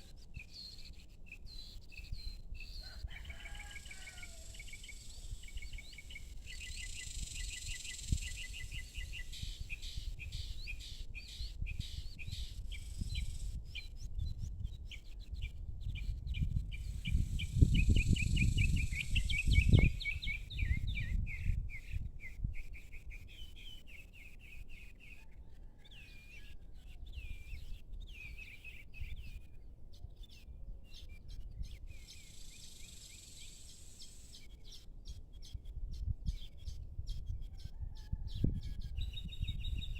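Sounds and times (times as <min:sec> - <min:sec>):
small birds chirping: 0:00.0 - 0:25.2, 0:26.8 - 0:39.9
faint high insect hiss: 0:03.7 - 0:10.0, 0:32.0 - 0:34.5.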